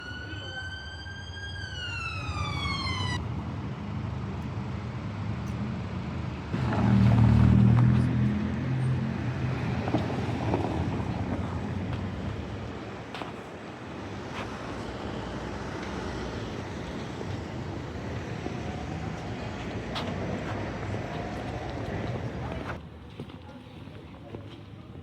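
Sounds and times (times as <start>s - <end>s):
siren-like gliding tone: 0.0s - 3.2s
street noise: 0.0s - 25.0s
motor vehicle passing: 6.5s - 13.2s, 13.8s - 22.8s.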